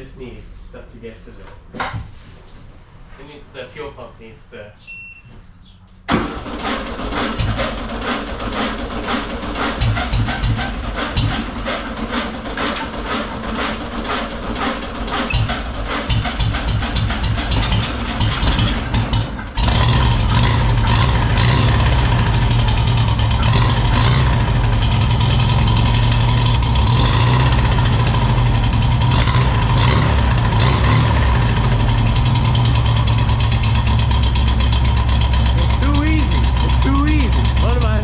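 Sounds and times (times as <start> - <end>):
car engine cranking and running: 6.1 - 38.0.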